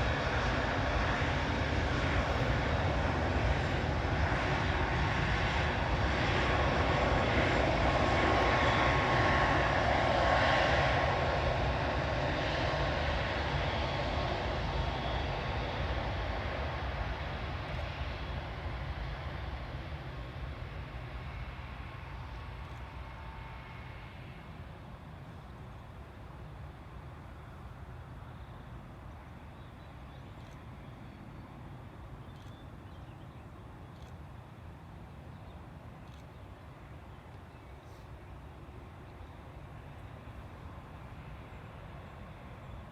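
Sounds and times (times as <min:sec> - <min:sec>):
jet engines roaring: 0:00.0 - 0:30.0
faint bird chirps: 0:28.3 - 0:34.2.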